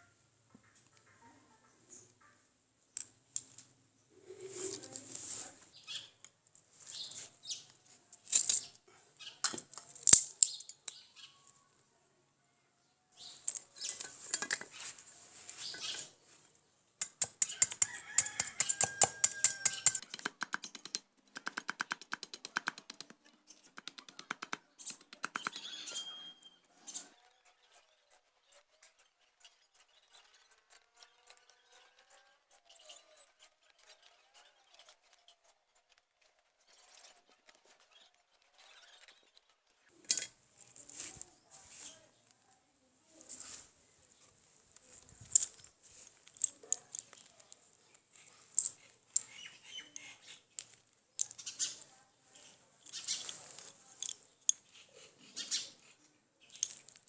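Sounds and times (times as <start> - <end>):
rapid clicking or flapping: 17.2 - 26.0
faint short chirps: 25.4 - 27.1.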